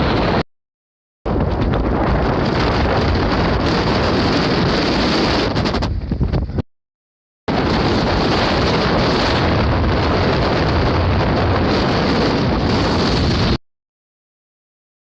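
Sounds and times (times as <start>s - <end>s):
wind buffeting microphone: 0.0s - 0.4s, 1.3s - 6.6s, 7.5s - 13.6s.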